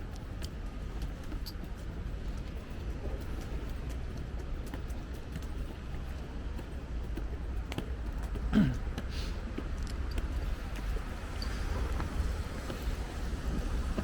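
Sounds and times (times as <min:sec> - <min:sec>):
rain: 0:00.0 - 0:14.0
wind rumble on microphone: 0:00.0 - 0:14.0
light clicks: 0:09.0 - 0:13.0.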